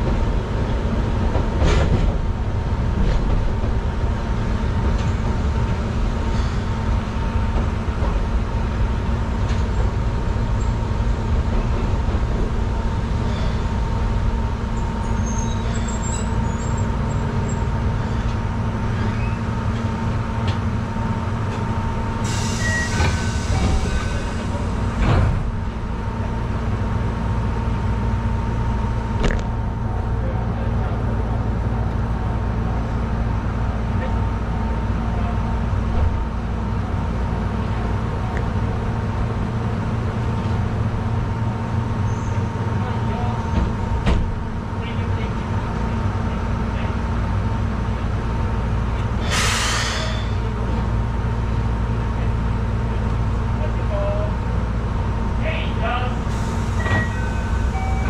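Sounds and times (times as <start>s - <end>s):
electric train low rumble: 0.0s - 58.0s
hiss of air: 49.2s - 50.3s.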